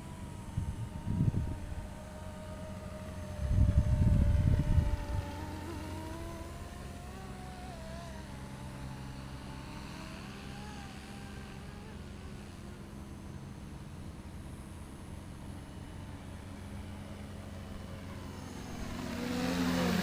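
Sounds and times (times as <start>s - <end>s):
model helicopter motor whine: 0.0s - 20.0s.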